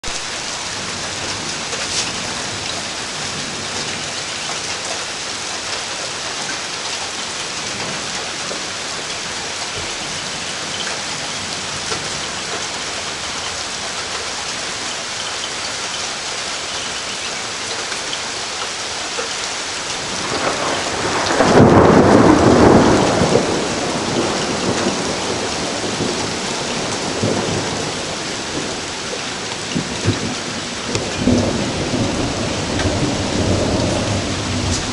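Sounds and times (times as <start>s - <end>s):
steady rain falling: 0.0s - 34.9s
thunder rumbling: 19.9s - 34.9s.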